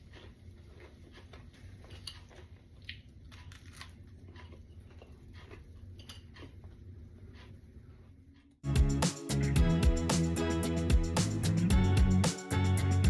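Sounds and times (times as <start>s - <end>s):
person chewing crunchy food: 0.0s - 7.6s.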